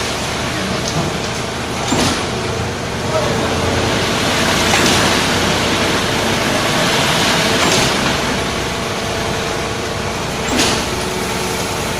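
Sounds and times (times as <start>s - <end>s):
concrete mixer engine running: 0.0s - 11.9s.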